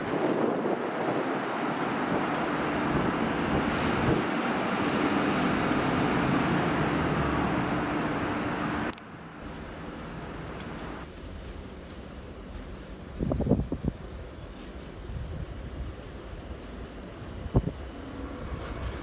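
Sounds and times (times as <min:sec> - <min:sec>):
wind noise on microphone: 0:00.0 - 0:06.7, 0:13.1 - 0:14.2, 0:14.8 - 0:19.0
electric train rumbling: 0:00.0 - 0:19.0
low train hum: 0:00.0 - 0:19.0.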